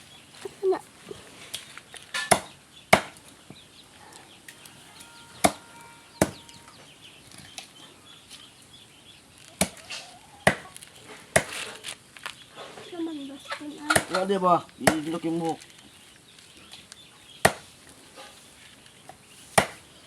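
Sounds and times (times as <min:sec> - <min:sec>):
blade chopping meat: 0:05.3 - 0:06.7.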